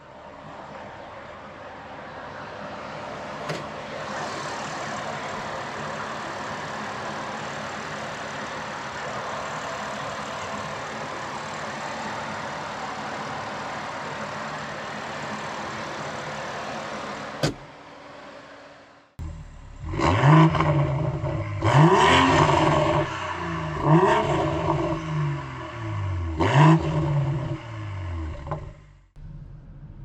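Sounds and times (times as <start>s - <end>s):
car engine idling: 3.0s - 30.0s
car hood slamming shut: 17.4s - 17.7s.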